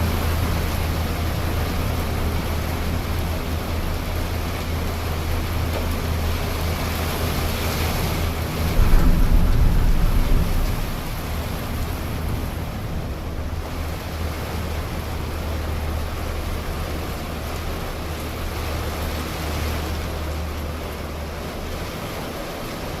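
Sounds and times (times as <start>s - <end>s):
wind buffeting microphone: 0.0s - 23.0s
storm wind rushing: 7.8s - 14.4s.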